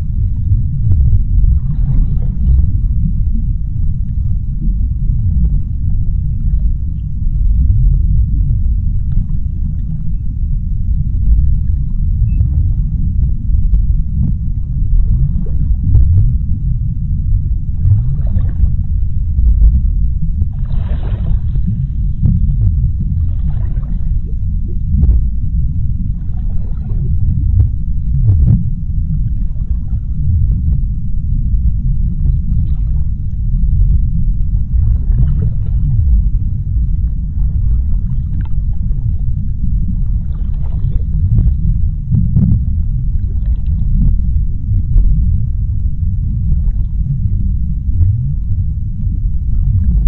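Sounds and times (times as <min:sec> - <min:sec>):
underwater rumble of water: 0:00.0 - 0:50.0.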